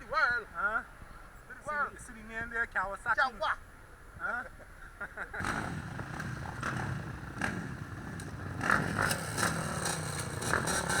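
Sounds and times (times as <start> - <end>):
dirt bike engine revving: 5.4 - 11.0.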